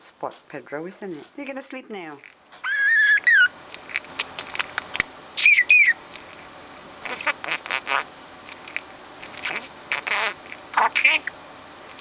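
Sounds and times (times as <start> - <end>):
budgerigar whistling: 2.6 - 3.6, 4.2 - 6.1, 7.0 - 8.1, 9.4 - 11.4
budgerigar chattering: 2.6 - 6.1, 7.0 - 11.4.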